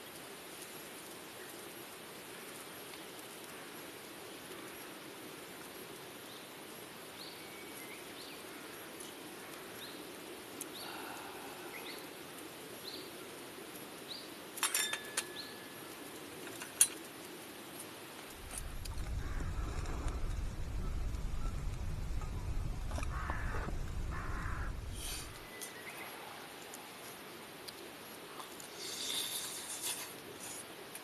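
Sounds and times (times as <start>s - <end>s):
sharp clinks: 14.6s - 15.6s
low rushing hiss: 18.0s - 27.4s.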